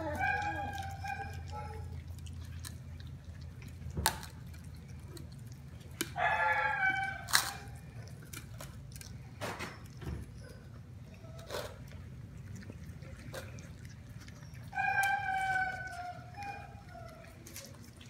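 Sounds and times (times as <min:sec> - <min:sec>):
puppy whining: 0:00.0 - 0:02.7, 0:06.1 - 0:08.3, 0:09.5 - 0:12.1, 0:12.7 - 0:18.0
puppies eating with wet smacking: 0:00.0 - 0:18.0.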